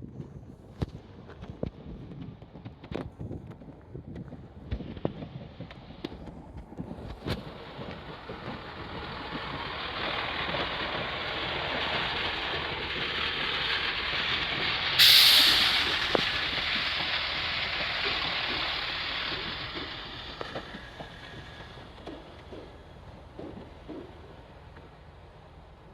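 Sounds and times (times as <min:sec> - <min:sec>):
air brakes hissing: 0:07.2 - 0:24.2
large vehicle passing: 0:07.4 - 0:22.8.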